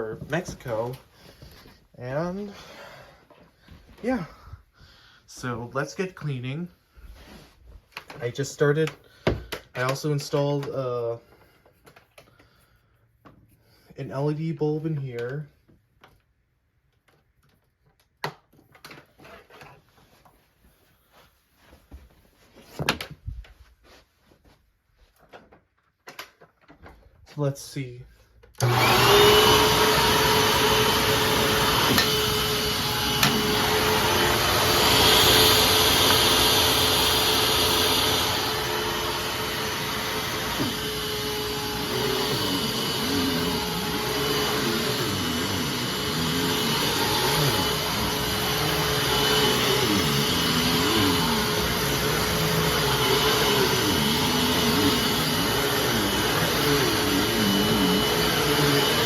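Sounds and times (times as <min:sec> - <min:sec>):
upright vacuum cleaner running: 0:28.6 - 0:59.0.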